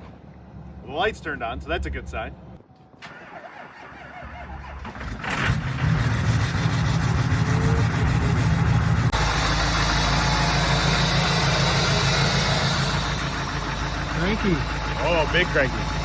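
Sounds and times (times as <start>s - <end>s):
diesel engine cranking and starting: 3.0s - 16.0s
diesel engine idling: 3.2s - 16.0s.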